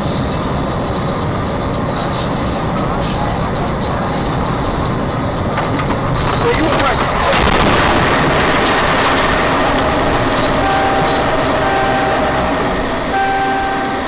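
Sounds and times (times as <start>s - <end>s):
car engine and road noise: 0.0s - 14.0s
steady horn tone: 10.5s - 14.0s.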